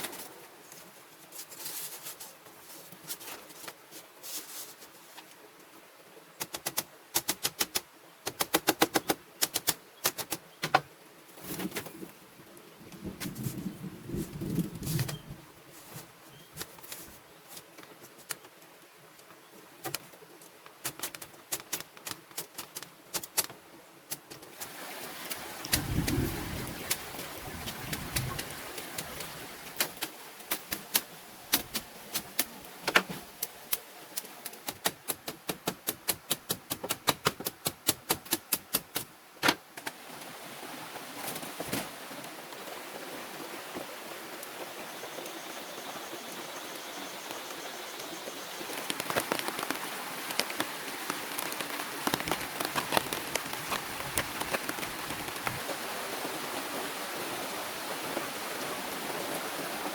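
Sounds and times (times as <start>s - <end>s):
small ticks: 48.7s - 55.6s.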